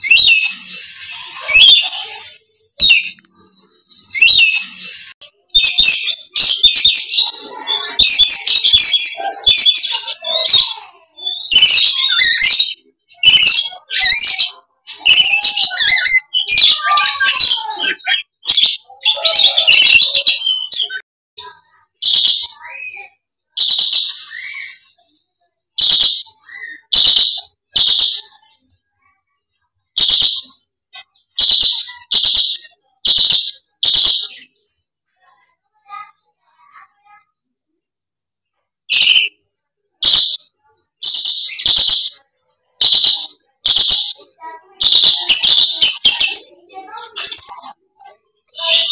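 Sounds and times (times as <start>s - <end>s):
parrots screeching: 0.0s - 3.2s, 4.1s - 5.0s, 5.6s - 20.9s, 22.0s - 23.0s, 23.6s - 25.0s, 41.0s - 42.2s.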